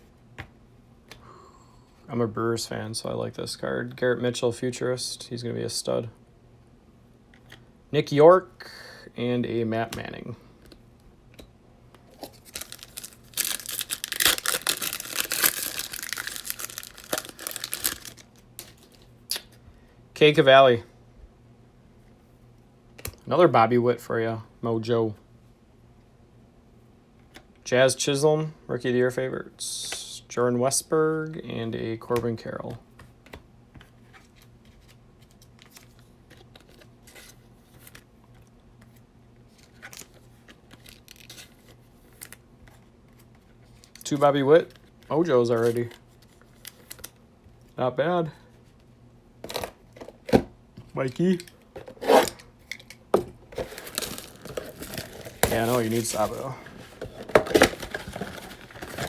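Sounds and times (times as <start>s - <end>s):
foil wrapper tearing and crinkling: 12.2s - 19.0s, 53.6s - 59.0s.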